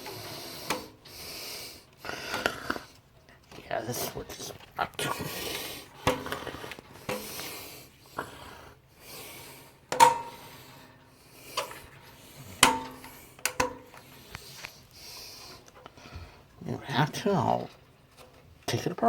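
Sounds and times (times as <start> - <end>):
rubbing and handling noise: 0.0 - 19.0
fan push-button switch clacks: 9.9 - 10.5, 12.6 - 14.7.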